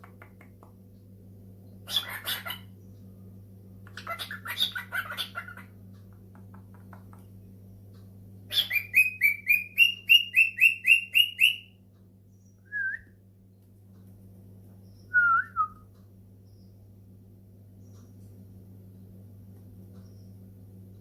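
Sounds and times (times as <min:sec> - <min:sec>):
low hum: 0:00.0 - 0:21.0
cockatiel whistled chirps: 0:08.5 - 0:11.7, 0:15.1 - 0:15.8.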